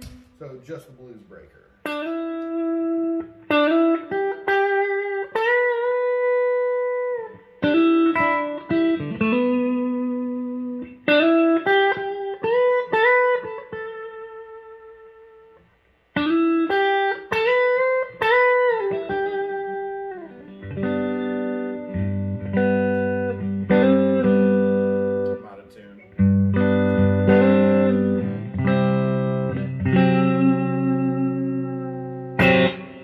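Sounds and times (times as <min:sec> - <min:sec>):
overdriven electric guitar: 0:01.8 - 0:33.0.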